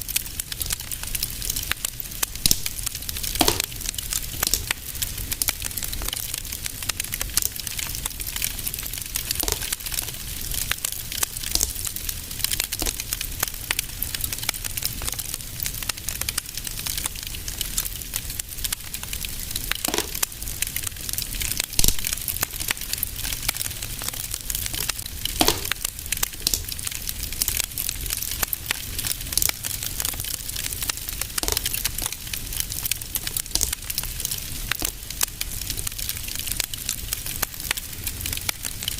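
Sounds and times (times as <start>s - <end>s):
wood fire crackling: 0.0s - 38.9s
sharp pops: 2.3s - 5.4s, 9.3s - 10.7s, 11.4s - 11.9s, 19.7s - 20.6s, 24.6s - 26.9s, 31.3s - 32.4s, 34.8s - 35.8s.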